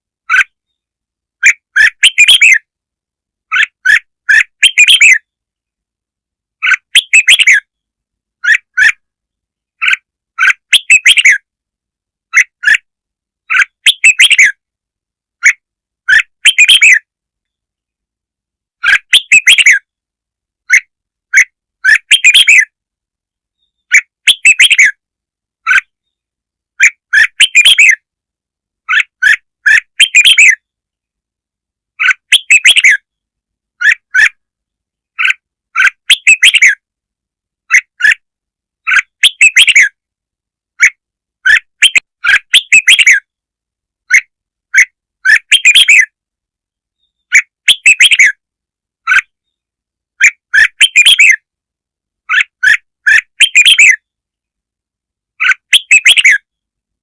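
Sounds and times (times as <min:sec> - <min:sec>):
bird chattering song: 0:00.3 - 0:00.8, 0:01.4 - 0:02.7, 0:03.5 - 0:05.4, 0:06.6 - 0:07.8, 0:08.4 - 0:09.0, 0:09.8 - 0:11.4, 0:12.3 - 0:12.8, 0:13.5 - 0:14.6, 0:15.4 - 0:17.1, 0:18.8 - 0:19.9, 0:20.6 - 0:22.8, 0:23.6 - 0:25.0, 0:25.6 - 0:26.2, 0:26.8 - 0:28.0, 0:28.8 - 0:30.7, 0:32.0 - 0:33.2, 0:33.8 - 0:34.4, 0:35.1 - 0:36.8, 0:37.7 - 0:38.2, 0:38.8 - 0:40.0, 0:40.8 - 0:43.3, 0:44.1 - 0:46.2, 0:47.0 - 0:48.4, 0:50.2 - 0:51.4, 0:52.3 - 0:54.0, 0:55.4 - 0:56.5.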